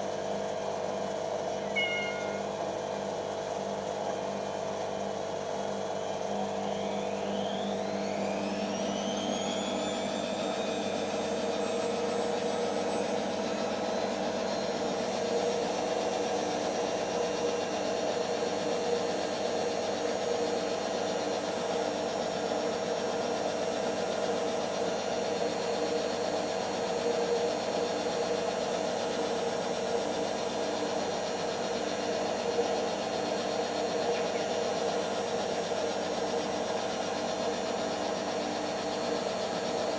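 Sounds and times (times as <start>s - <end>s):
washing machine motor whine: 0.0s - 39.9s
washing machine running: 4.7s - 39.9s.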